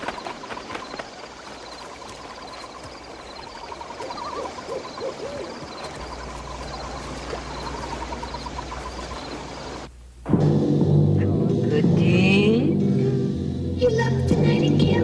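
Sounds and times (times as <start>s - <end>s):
fast steady chirping: 0.0s - 9.9s
owl hooting: 0.0s - 9.9s
low hum: 2.0s - 13.8s.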